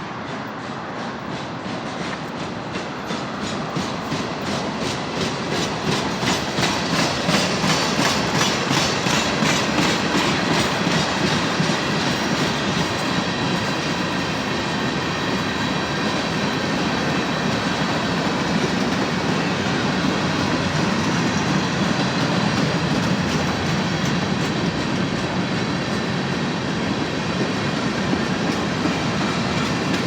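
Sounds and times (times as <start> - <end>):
wheels rumbling on rail: 0.0 - 30.0.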